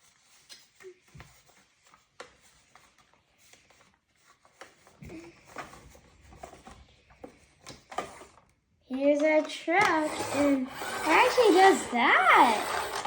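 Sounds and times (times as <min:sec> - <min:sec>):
cardboard and plastic rustling: 0:00.0 - 0:10.2.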